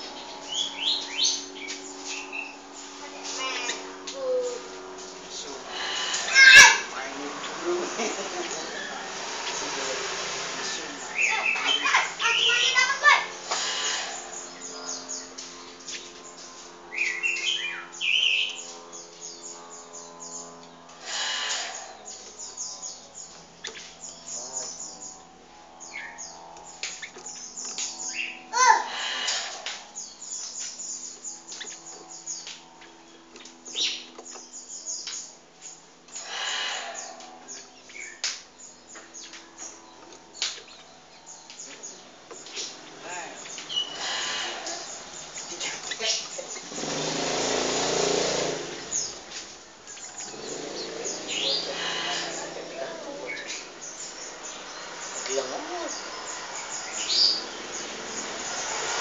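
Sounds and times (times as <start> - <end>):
bird warbling calls: 0.0 - 59.0
small birds chirping: 0.0 - 59.0
harsh bird call: 5.7 - 15.1, 50.1 - 59.0.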